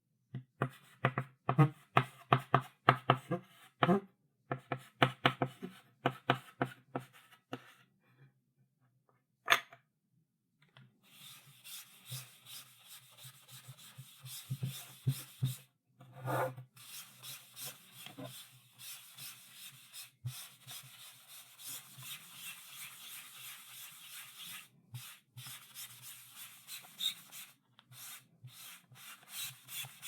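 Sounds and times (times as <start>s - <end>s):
chalk tapping on blackboard: 0.6s - 7.7s, 11.2s - 15.6s, 16.8s - 30.0s
chalk scratching across board: 11.1s - 15.6s, 16.2s - 30.0s.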